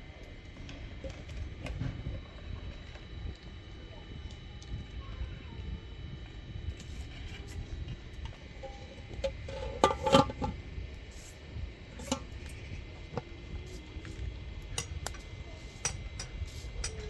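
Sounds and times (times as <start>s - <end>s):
steady low rumble: 0.0s - 17.0s
dishes clinking and knocking: 9.5s - 10.6s.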